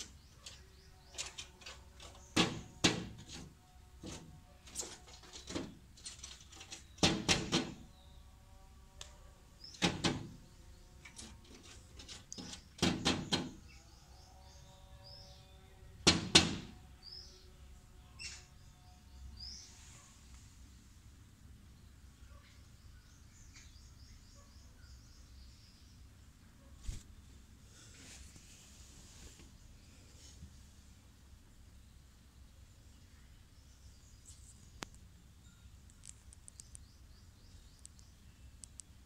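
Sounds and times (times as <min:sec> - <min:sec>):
woodpecker tapping on glass: 0:00.0 - 0:07.8, 0:11.1 - 0:13.6.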